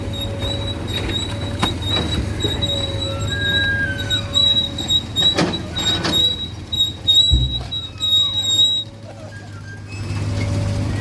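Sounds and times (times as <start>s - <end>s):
high metallic squeal: 0.0s - 10.7s
low engine hum: 0.0s - 11.0s
low thud: 7.2s - 7.9s.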